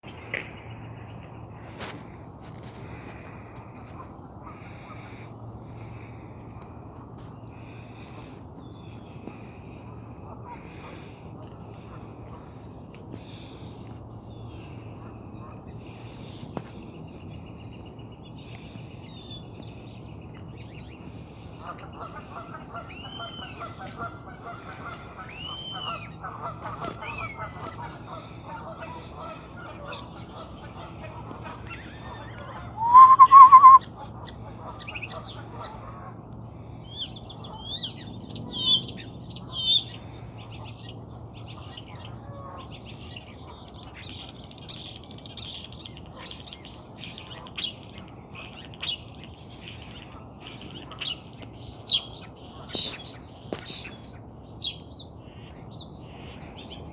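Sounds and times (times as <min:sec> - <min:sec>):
birds chirping and twittering: 0:00.0 - 0:56.9
birds whistling: 0:32.7 - 0:34.4
loud brief bird call: 0:32.8 - 0:33.9.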